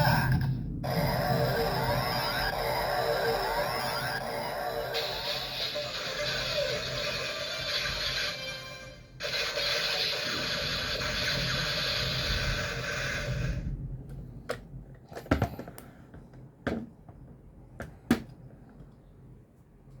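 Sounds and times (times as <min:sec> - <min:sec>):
music: 0:02.8 - 0:09.2.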